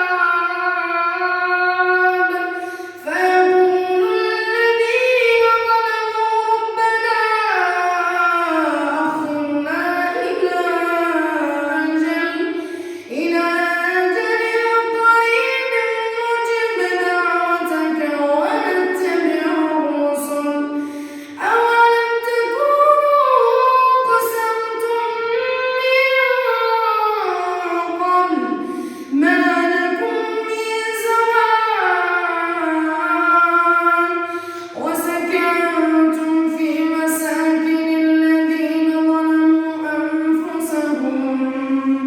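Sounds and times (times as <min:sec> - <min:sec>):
solo voice chanting: 0:00.0 - 0:42.0
person breathing: 0:02.6 - 0:03.0, 0:12.6 - 0:13.1, 0:20.7 - 0:21.4, 0:28.6 - 0:29.2, 0:34.2 - 0:34.8.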